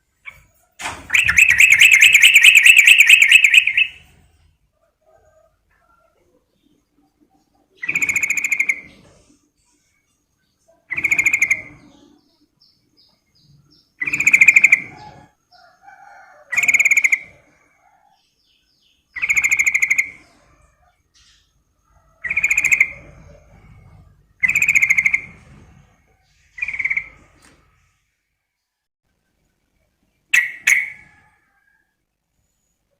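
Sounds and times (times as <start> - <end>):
bulbul calling bubbly phrases: 1.1 - 3.9.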